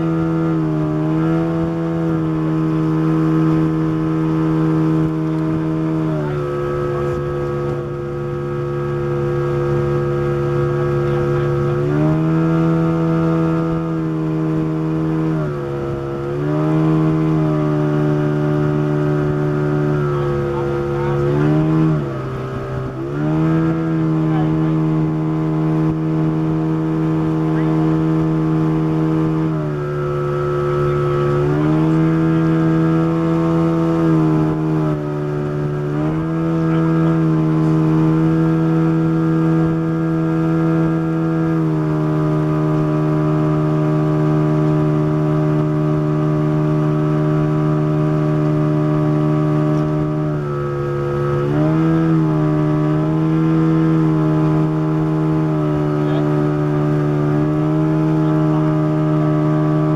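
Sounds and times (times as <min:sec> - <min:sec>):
motorboat engine running: 0:00.0 - 0:59.9.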